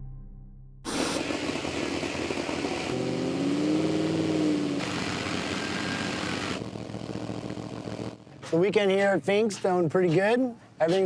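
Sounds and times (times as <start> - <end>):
truck engine running hard: 0.9 - 8.4.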